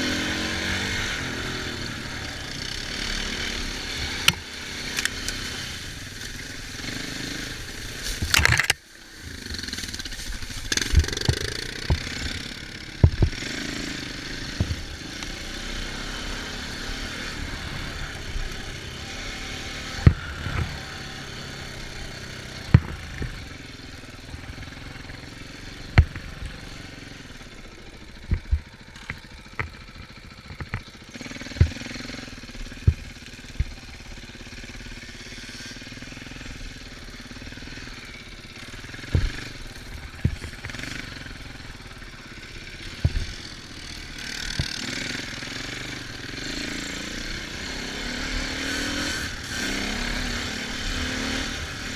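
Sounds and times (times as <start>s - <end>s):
off-road vehicle engine running: 0.0s - 51.9s
sharp knocks: 13.0s - 13.4s.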